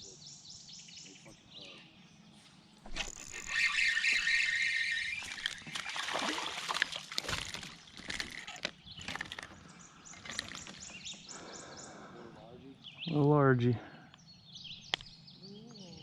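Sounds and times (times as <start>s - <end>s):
water splashing and sloshing: 4.2s - 9.6s.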